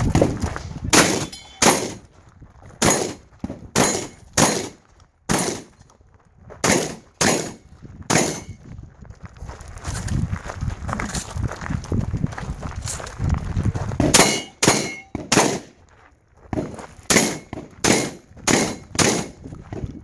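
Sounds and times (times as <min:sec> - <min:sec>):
shotgun blasts with echo: 0:00.1 - 0:02.0, 0:02.8 - 0:05.7, 0:06.6 - 0:08.6, 0:14.0 - 0:15.7, 0:16.6 - 0:19.4.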